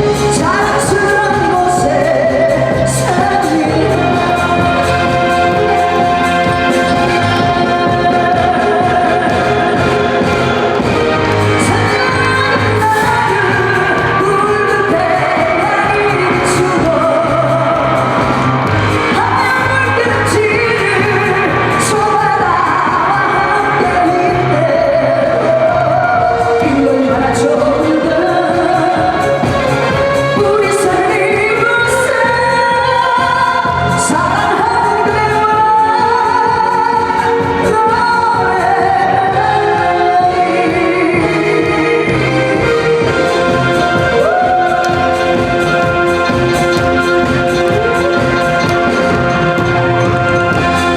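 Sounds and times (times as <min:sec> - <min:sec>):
backing track with steady beat: 0:00.0 - 0:50.9
band accompaniment: 0:00.0 - 0:50.9
person singing pop song: 0:00.0 - 0:50.9.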